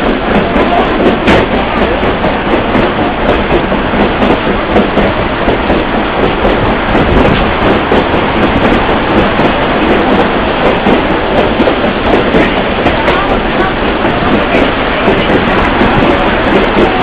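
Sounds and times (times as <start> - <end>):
faint voices: 0.0 - 17.0
train wheels rumbling on rails: 0.0 - 17.0.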